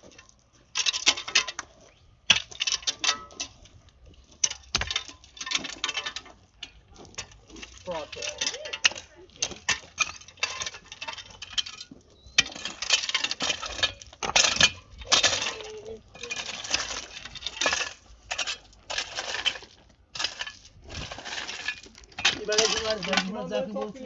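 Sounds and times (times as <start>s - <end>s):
metal tool scraping wet cement: 7.1s - 24.0s.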